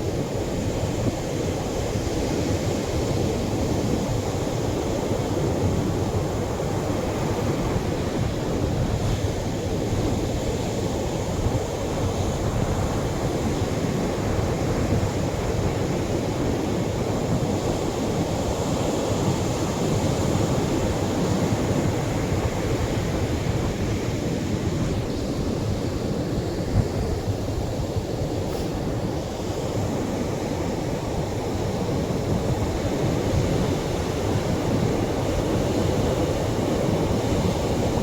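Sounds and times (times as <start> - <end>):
surf washing on a sandy shore: 0.0 - 38.0.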